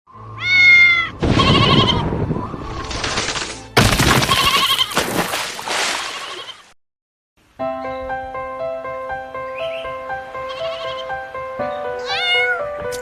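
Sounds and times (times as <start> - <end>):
sheep bleating: 10.5 - 11.1.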